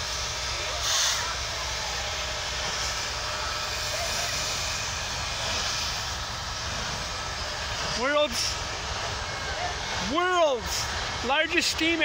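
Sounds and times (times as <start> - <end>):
train rolling past: 0.0 - 12.0.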